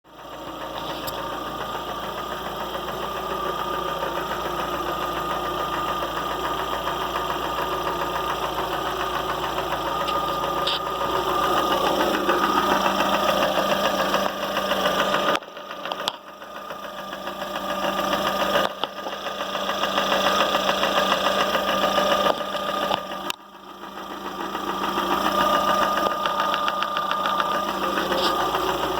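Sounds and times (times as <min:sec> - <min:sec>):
car engine running: 0:00.1 - 0:28.9
rapid ticking knock: 0:25.1 - 0:28.9.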